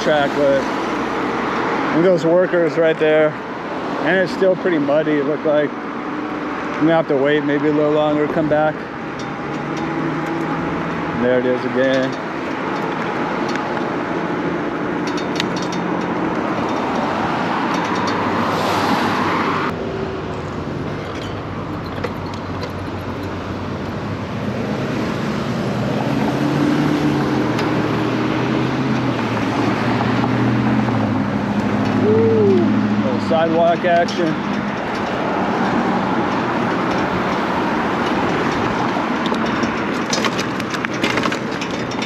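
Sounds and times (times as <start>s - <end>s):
traffic rushing noise: 0.0s - 42.0s
approaching vehicle engine hum: 4.7s - 40.9s.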